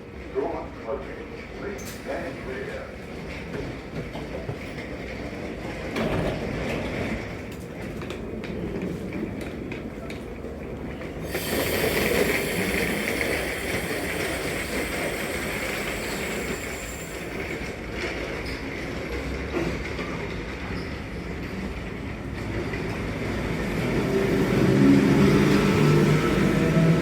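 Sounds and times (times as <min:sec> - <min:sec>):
train rumble: 0:00.0 - 0:27.0
train wheels clicking over rail joints: 0:01.4 - 0:23.2
loud hiss: 0:11.2 - 0:17.7.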